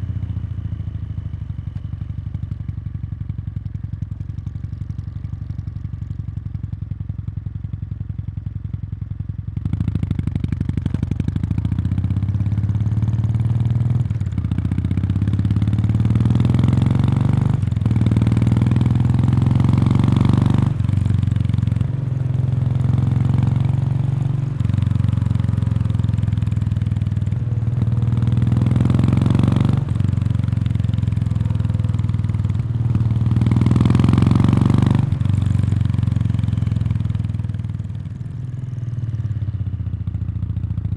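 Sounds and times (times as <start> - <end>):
motorcycle engine accelerating: 9.6 - 40.9.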